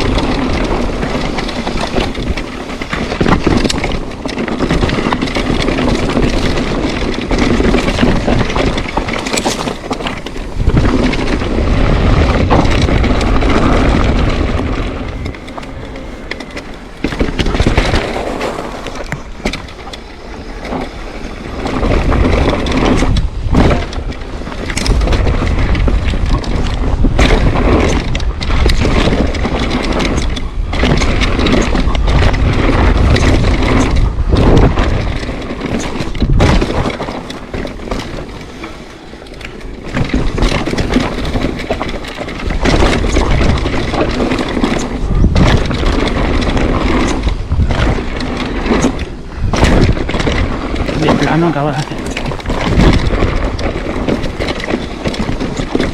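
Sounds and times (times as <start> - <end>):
tyres crunching over gravel: 0.0 - 24.7, 32.6 - 55.9
bike rattling and knocking: 0.0 - 55.9
wind rumbling on microphone: 0.0 - 55.9.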